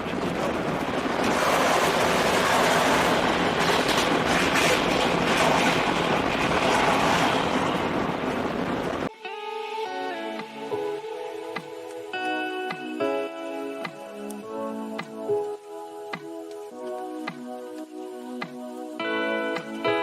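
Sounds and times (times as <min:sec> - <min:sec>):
train wheels on rails: 0:00.0 - 0:09.1
music: 0:09.1 - 0:20.0.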